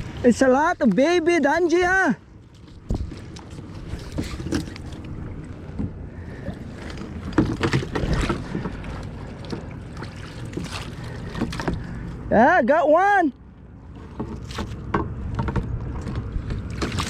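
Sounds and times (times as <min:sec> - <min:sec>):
wind rumble on microphone: 0:00.0 - 0:12.3, 0:14.0 - 0:17.0
water splashing: 0:00.0 - 0:12.4, 0:13.8 - 0:17.0
knocks and clatters of gear: 0:06.8 - 0:08.8.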